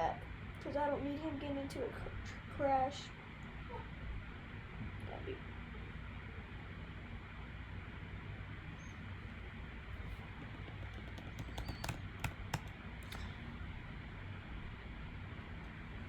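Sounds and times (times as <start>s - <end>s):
low hum and hiss: 0.0s - 16.0s
sharp clicks: 10.4s - 13.3s.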